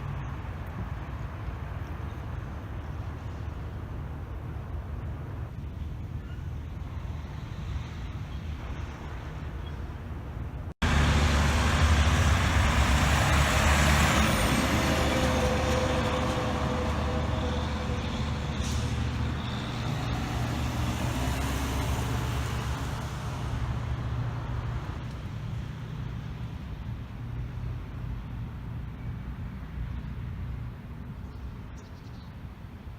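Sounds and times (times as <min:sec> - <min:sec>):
truck engine running: 0:10.8 - 0:25.0.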